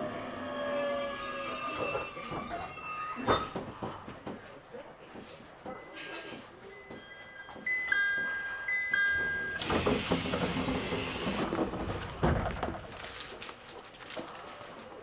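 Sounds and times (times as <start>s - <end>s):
train doors closing: 0.0s - 4.5s, 9.0s - 12.9s.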